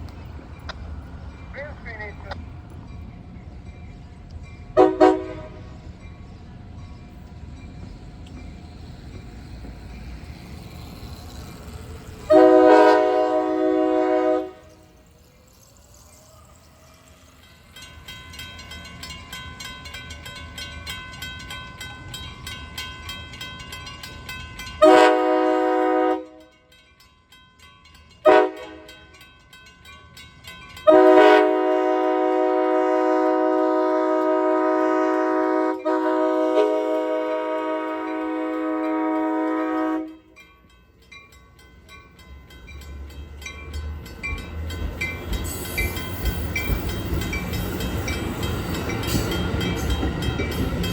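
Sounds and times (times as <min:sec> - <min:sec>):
train rumbling past: 0:00.0 - 0:50.9
locomotive air horn blasts: 0:04.8 - 0:05.7, 0:12.3 - 0:14.8, 0:24.8 - 0:26.5, 0:28.3 - 0:28.9, 0:30.9 - 0:40.4.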